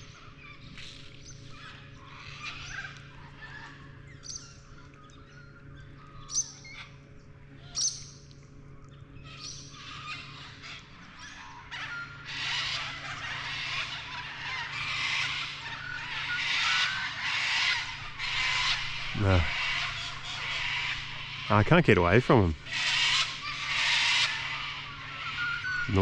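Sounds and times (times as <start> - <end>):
birds calling: 0.0 - 26.0.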